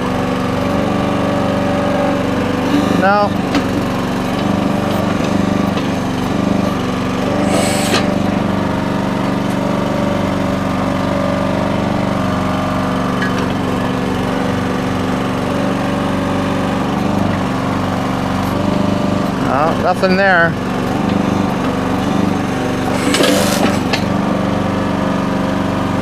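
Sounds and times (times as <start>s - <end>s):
small gas engine running: 0.0s - 26.0s
short hiss-like burst: 7.3s - 8.6s, 22.9s - 24.0s.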